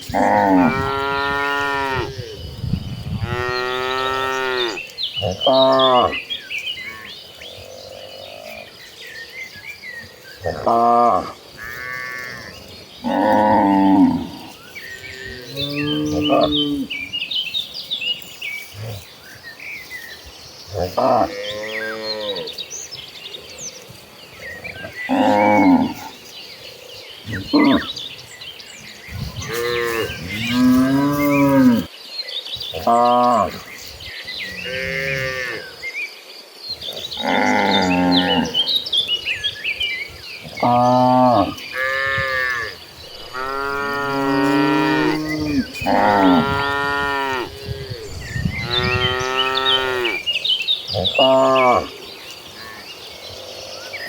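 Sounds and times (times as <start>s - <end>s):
cattle mooing: 40.6s - 48.0s, 48.6s - 50.3s.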